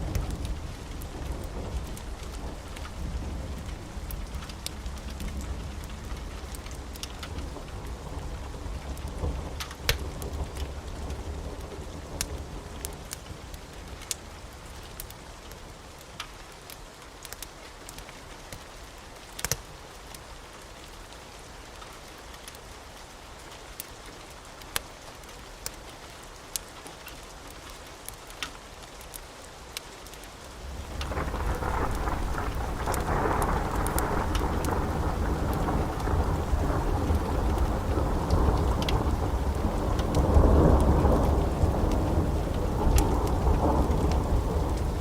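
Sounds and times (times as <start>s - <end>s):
thunder rumbling: 0.0s - 13.0s, 30.6s - 45.0s
steady rain: 0.0s - 45.0s
wood fire crackling: 0.0s - 45.0s.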